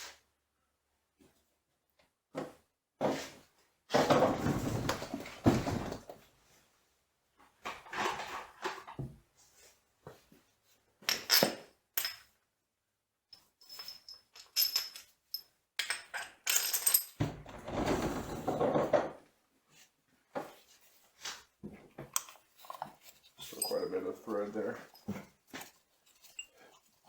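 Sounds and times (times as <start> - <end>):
clattering rummaging of metal parts: 4.0 - 6.1, 13.6 - 19.2, 22.2 - 27.0
metal tools clinking: 13.4 - 17.2, 22.2 - 27.0.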